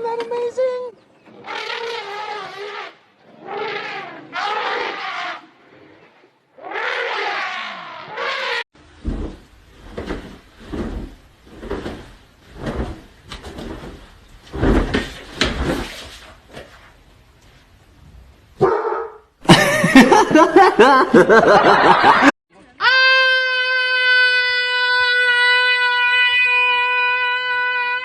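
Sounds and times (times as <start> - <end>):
dog barking: 18.6 - 19.2.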